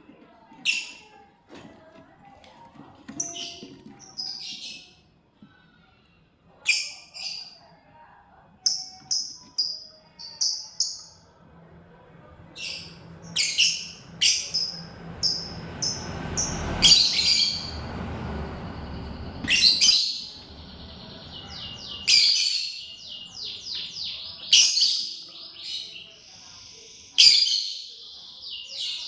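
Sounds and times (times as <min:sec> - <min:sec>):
low rumble: 0:11.6 - 0:22.0
lovebirds chirping shrilly: 0:12.6 - 0:17.9, 0:18.6 - 0:29.0.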